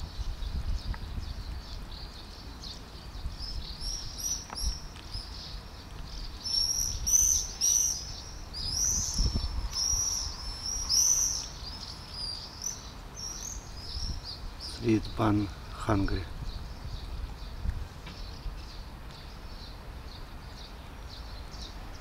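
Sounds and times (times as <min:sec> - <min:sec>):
small bird chirping: 0:00.0 - 0:15.3.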